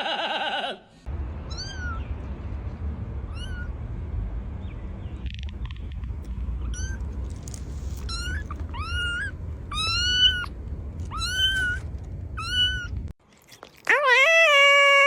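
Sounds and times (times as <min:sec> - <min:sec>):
low background rumble: 0:01.0 - 0:13.2
cat meowing: 0:08.0 - 0:13.1.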